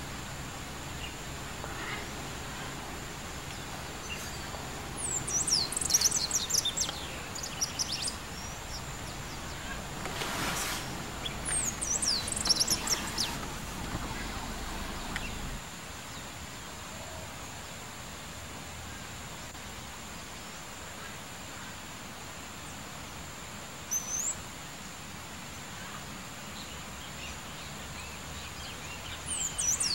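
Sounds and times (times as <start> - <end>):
birds chirping: 0.0 - 15.6, 27.2 - 29.9
outdoor background noise: 0.0 - 29.9
low rumble: 8.2 - 15.6.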